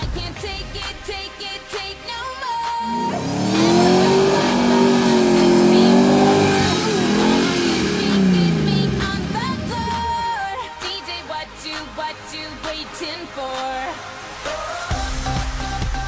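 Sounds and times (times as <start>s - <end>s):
engine revving under load: 2.7s - 10.5s.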